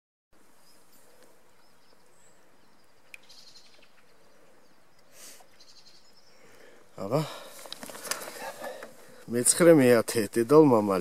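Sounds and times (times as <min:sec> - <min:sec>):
bird chirps: 0:00.6 - 0:07.1.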